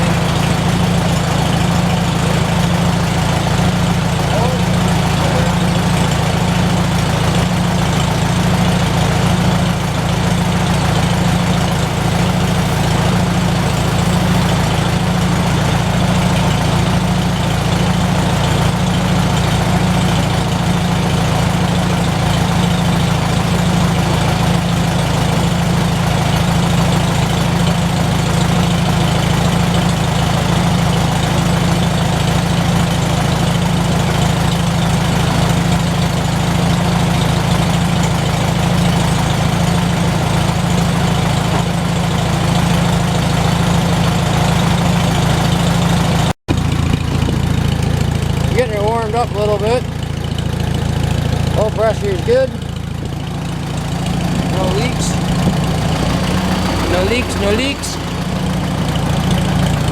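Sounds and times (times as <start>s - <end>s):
tractor engine idling: 0.0s - 59.9s.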